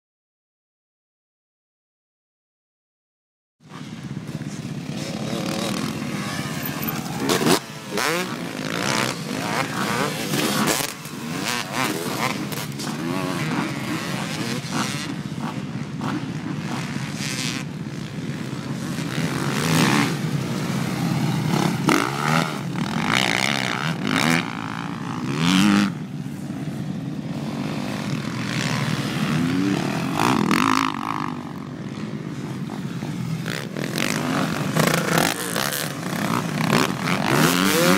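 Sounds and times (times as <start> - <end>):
dirt bike engines revving: 3.7 - 37.9.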